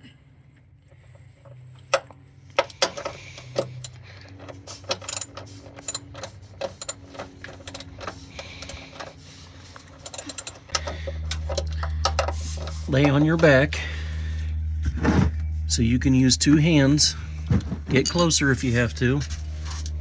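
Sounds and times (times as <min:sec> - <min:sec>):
socket ratchet clicking: 0:05.0 - 0:06.1, 0:07.6 - 0:07.9, 0:08.6 - 0:08.8, 0:10.0 - 0:10.6.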